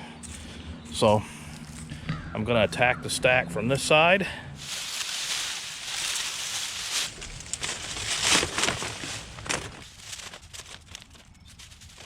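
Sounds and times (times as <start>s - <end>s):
dry leaves and sticks crackling: 0.2s - 2.0s, 4.6s - 12.0s.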